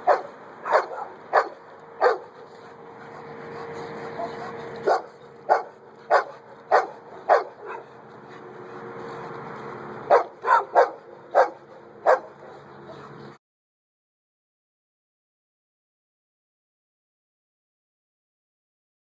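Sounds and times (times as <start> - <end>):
dog barking: 0.0 - 2.3, 4.2 - 7.9, 10.1 - 13.2.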